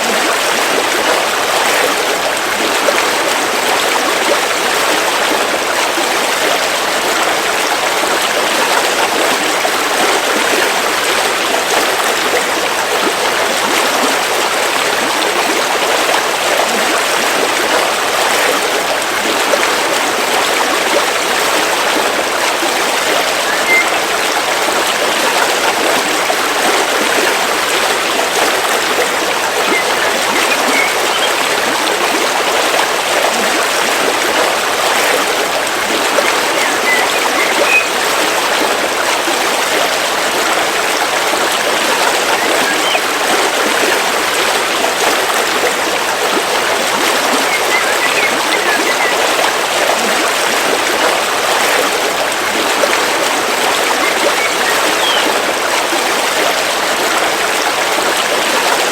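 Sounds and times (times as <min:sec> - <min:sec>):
river water rushing over stones: 0:00.0 - 0:58.9
faint bird chirps: 0:23.4 - 0:24.1, 0:29.6 - 0:31.5, 0:36.2 - 0:38.1, 0:42.4 - 0:43.0, 0:47.4 - 0:49.2, 0:53.9 - 0:55.4.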